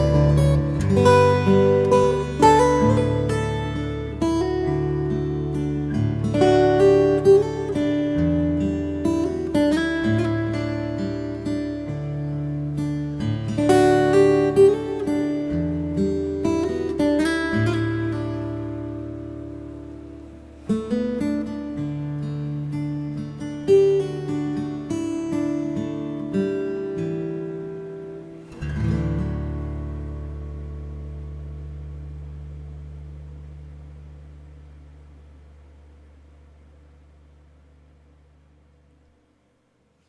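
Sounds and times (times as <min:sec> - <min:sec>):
slow acoustic guitar music: 0:00.0 - 0:38.3.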